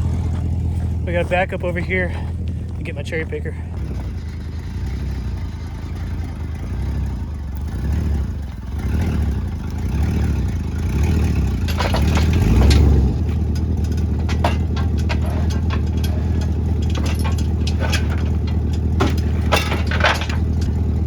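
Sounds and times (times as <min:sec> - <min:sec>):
truck engine running: 0:00.0 - 0:21.0
rattles or knocks: 0:11.0 - 0:21.0.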